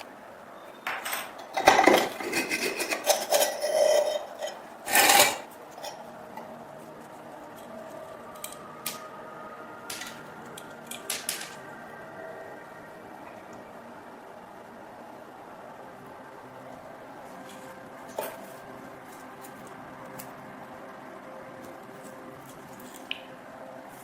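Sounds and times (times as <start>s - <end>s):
scraping on metal: 1.4s - 6.1s.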